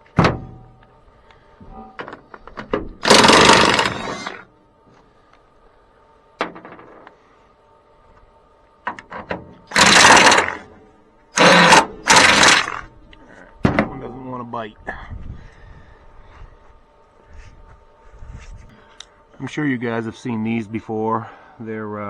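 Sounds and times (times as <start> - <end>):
impact wrench hammering: 3.0 - 4.4, 9.7 - 10.6, 11.4 - 12.8.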